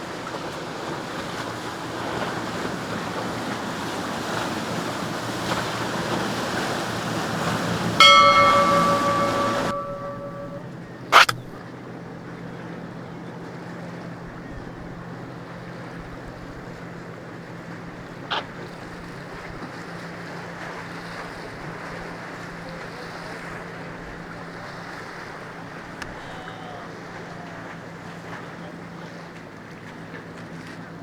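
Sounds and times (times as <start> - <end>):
boat engines droning: 0.0 - 31.0
wind: 0.0 - 31.0
surf: 1.7 - 10.6, 22.1 - 31.0
sharp knock: 8.0 - 10.6.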